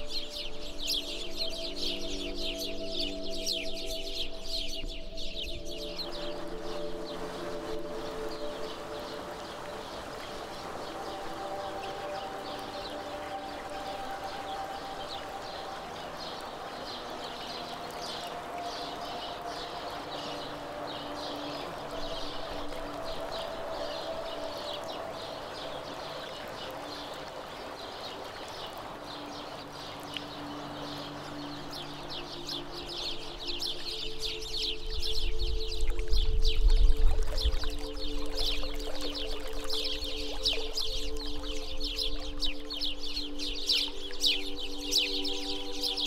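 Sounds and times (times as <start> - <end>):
birds chirping: 0.0 - 46.0
soft held music tones: 0.0 - 46.0
river water rushing: 6.0 - 36.3.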